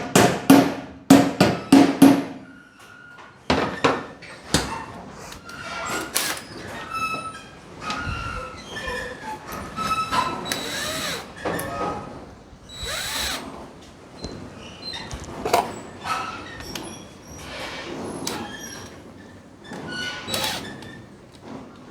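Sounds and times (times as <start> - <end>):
power drill whining: 5.4 - 6.5, 9.7 - 13.6, 19.8 - 21.1.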